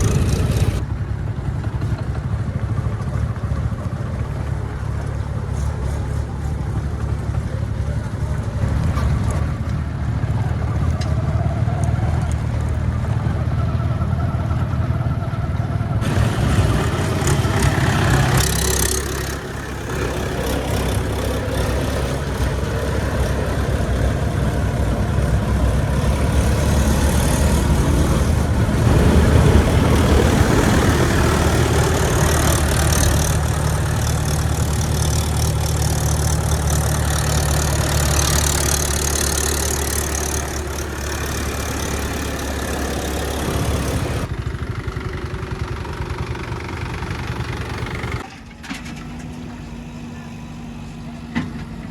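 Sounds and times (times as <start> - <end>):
heavy diesel engine running: 0.0 - 51.9.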